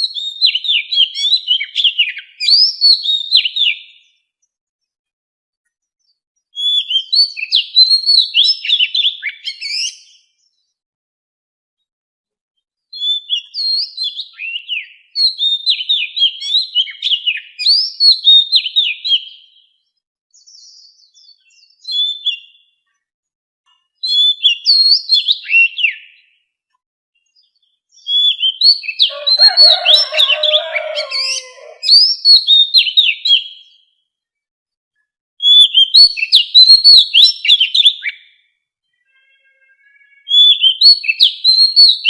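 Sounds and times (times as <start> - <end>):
bird singing whistled phrases: 0.0 - 4.0, 6.6 - 10.2, 13.0 - 19.6, 20.4 - 22.7, 24.0 - 26.3, 27.9 - 33.8, 35.4 - 38.3, 39.8 - 42.0.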